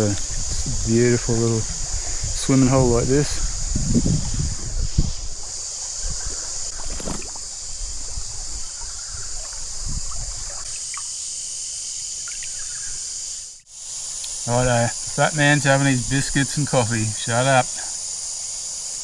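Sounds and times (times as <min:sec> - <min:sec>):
creek water trickling: 0:00.0 - 0:13.0
insects humming: 0:00.0 - 0:19.0.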